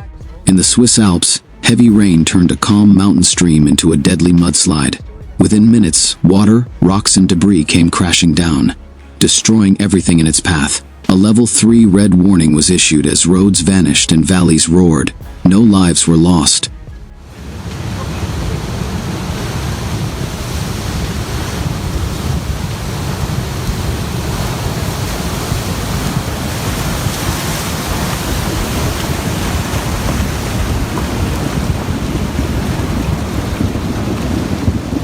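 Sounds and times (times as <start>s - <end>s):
rushing floodwater roar: 0.0s - 35.0s
wind buffeting microphone: 16.6s - 35.0s.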